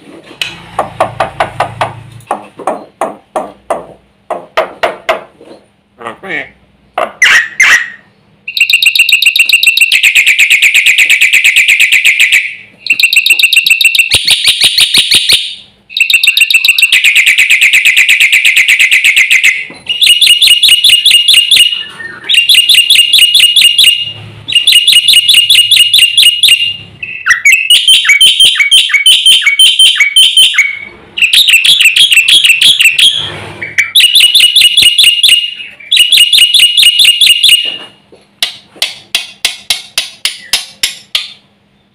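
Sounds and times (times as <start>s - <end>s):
starling singing: 24.5s - 37.0s.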